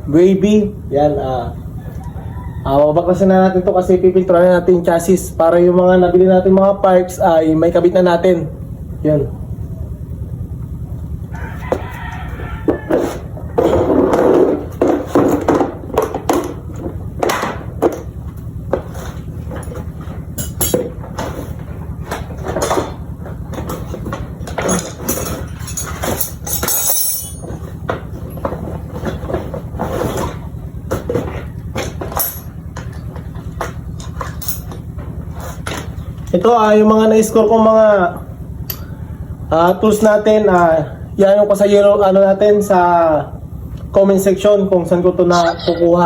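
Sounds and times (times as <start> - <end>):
steady low hum: 0.0 - 46.0
metal tools clinking and clattering: 19.5 - 21.5, 23.6 - 27.8, 31.9 - 33.1, 34.0 - 34.8.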